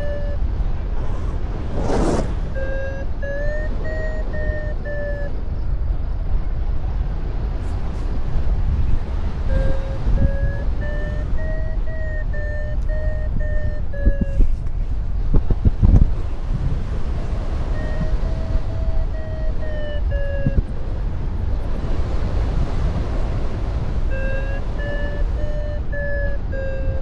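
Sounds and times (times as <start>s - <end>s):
variometer short beeps: 0.0s - 0.6s, 1.8s - 5.4s, 9.4s - 14.6s, 17.6s - 20.8s, 24.1s - 27.0s
wind rumble on microphone: 0.0s - 27.0s.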